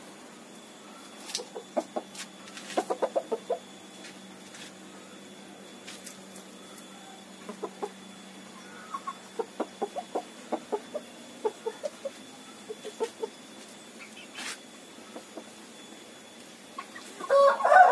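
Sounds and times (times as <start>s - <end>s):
chickens clucking: 1.2s - 4.1s, 7.4s - 15.6s, 16.7s - 17.9s.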